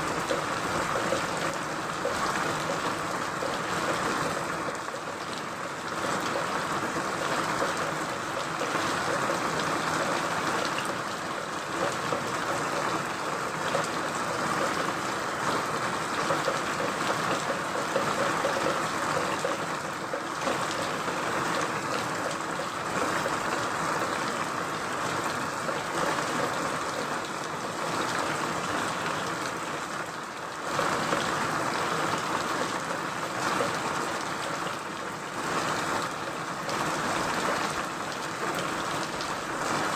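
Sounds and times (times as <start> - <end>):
steady rain falling: 0.0 - 39.9
scattered drips and taps: 0.2 - 15.0, 15.6 - 23.4.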